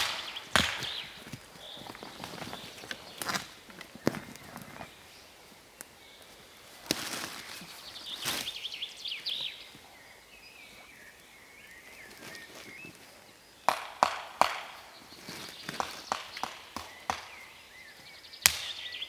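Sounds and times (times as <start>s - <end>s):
axe chopping wood: 0.0s - 1.5s, 13.7s - 14.9s, 15.7s - 17.6s, 18.4s - 19.0s
small birds chirping: 0.0s - 19.0s.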